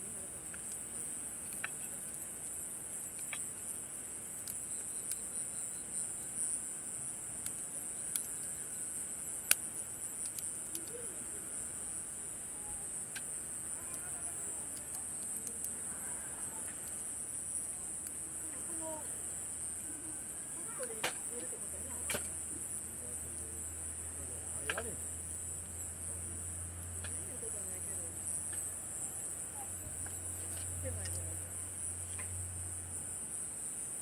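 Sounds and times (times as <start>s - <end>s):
night insects chorus: 0.0s - 34.0s
campfire crackling and popping: 0.3s - 5.7s, 6.7s - 11.2s, 12.0s - 15.9s.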